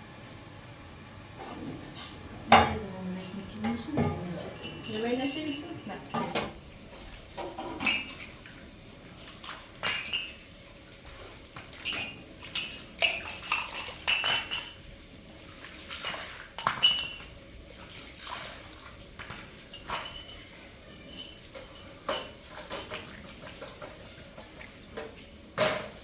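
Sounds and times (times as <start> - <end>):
dishes and utensils clinking: 1.4 - 2.9, 3.5 - 8.4, 9.8 - 10.5, 11.8 - 14.9, 16.0 - 17.3, 19.2 - 23.2, 23.8 - 26.0.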